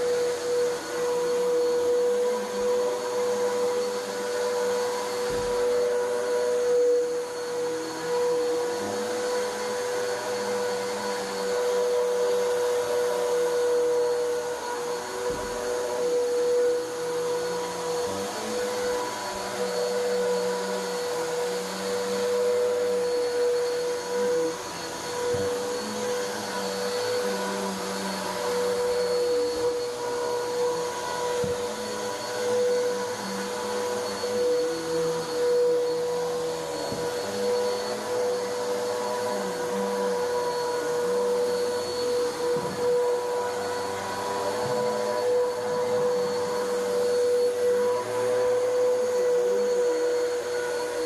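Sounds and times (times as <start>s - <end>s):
vacuum cleaner running: 0.0s - 51.0s.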